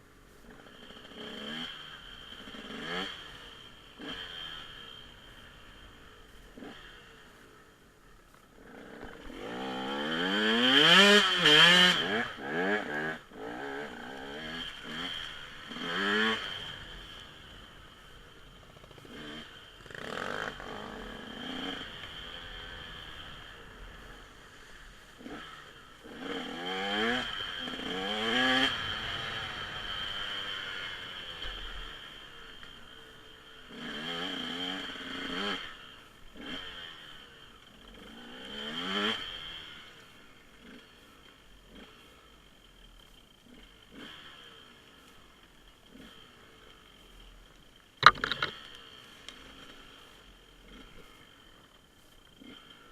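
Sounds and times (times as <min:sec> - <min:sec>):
dirt bike engine revving: 0:00.4 - 0:07.5, 0:08.5 - 0:42.4, 0:43.3 - 0:52.9.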